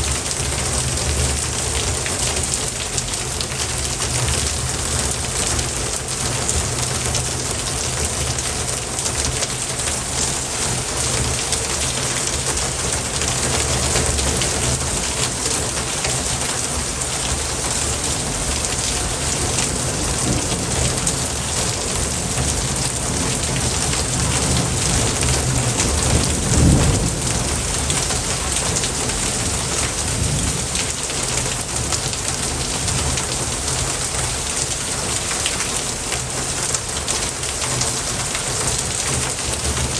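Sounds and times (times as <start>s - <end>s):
heavy rain: 0.0s - 39.9s
low rumble of thunder: 2.4s - 33.9s.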